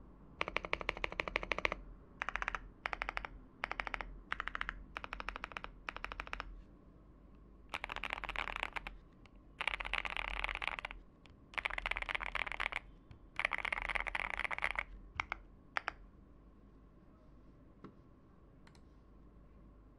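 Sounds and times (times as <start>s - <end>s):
mechanical keyboard typing: 0.4s - 6.5s, 7.7s - 9.0s, 9.6s - 16.0s.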